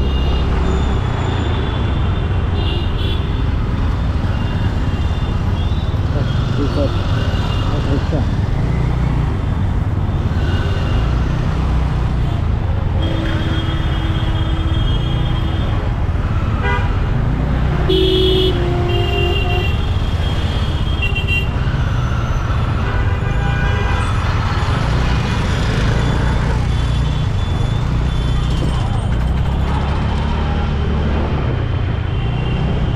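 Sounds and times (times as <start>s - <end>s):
city traffic rumble: 0.0s - 32.9s
vehicle horns honking: 16.6s - 16.9s, 17.8s - 20.2s.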